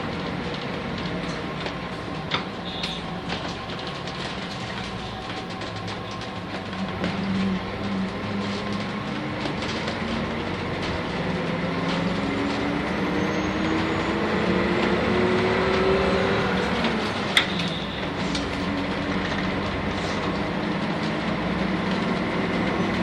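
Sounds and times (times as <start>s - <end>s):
bus engine accelerating: 0.0s - 23.0s
road and body noise: 0.0s - 23.0s.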